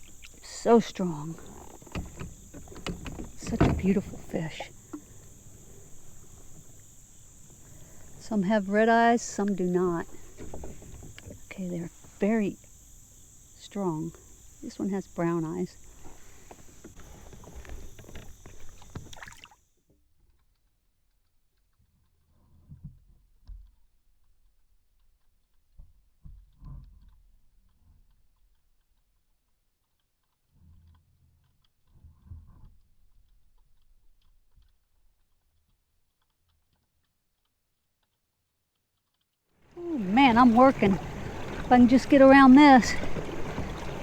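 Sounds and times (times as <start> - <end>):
kayak gear knocking and clicking: 0.0 - 13.2, 15.8 - 19.3, 40.0 - 44.0.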